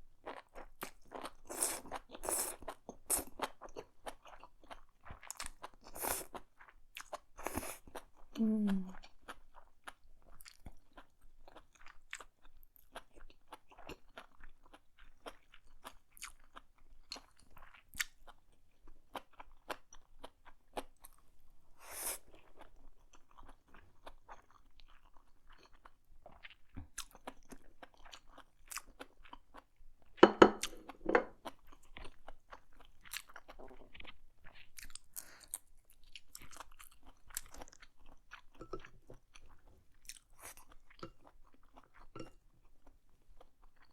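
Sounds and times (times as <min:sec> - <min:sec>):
person chewing noodles: 0:00.2 - 0:43.9.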